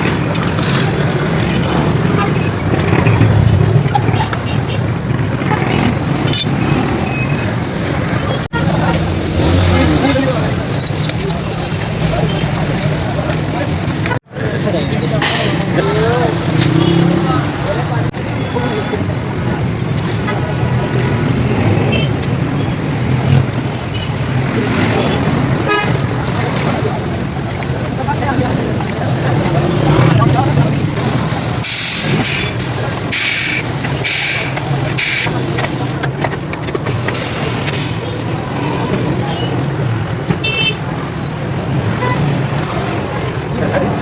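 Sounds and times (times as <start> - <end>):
road traffic rumble: 0.0 - 44.0
compressed air hiss: 31.0 - 36.0.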